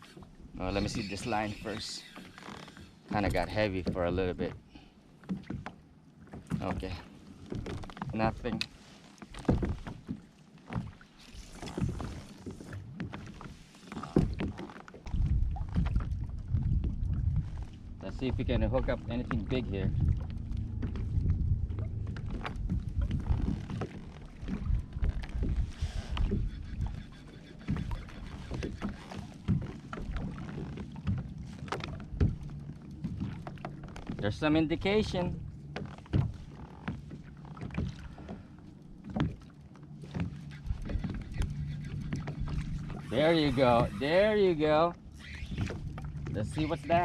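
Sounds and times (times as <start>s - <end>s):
water knocking against kayak hull: 3.1s - 4.6s, 11.8s - 17.6s, 18.3s - 27.0s, 27.6s - 34.4s, 35.0s - 38.4s, 39.0s - 43.8s
low rumble: 15.1s - 23.4s.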